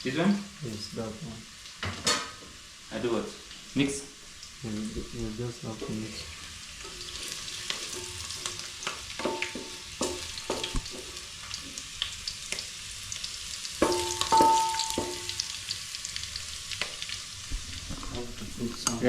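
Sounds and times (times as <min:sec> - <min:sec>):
food sizzling in oil: 0:00.0 - 0:19.0
spoon scraping pan: 0:06.8 - 0:11.3.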